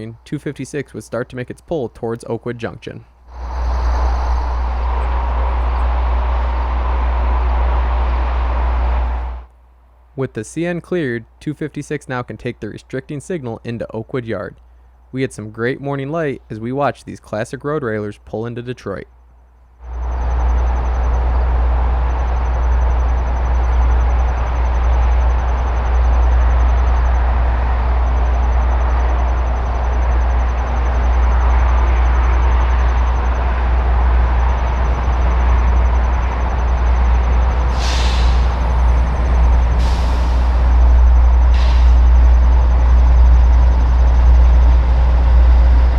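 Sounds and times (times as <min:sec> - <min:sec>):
freight train rumbling by: 0:02.5 - 0:09.5, 0:19.8 - 0:45.9
faint steady tone: 0:11.0 - 0:16.7, 0:17.3 - 0:45.9.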